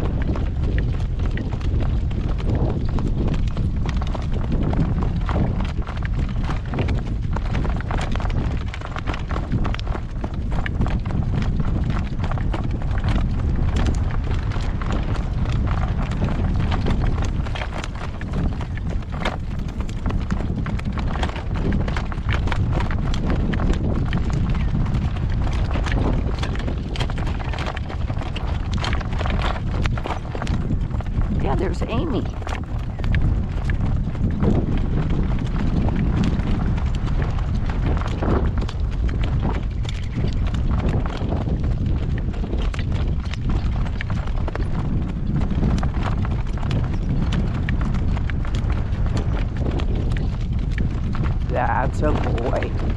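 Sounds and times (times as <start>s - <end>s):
steady low rumble: 0.0s - 2.5s, 12.0s - 42.7s, 45.0s - 52.9s
horse hooves clopping on road: 0.0s - 52.9s
wind buffeting microphone: 0.0s - 52.9s.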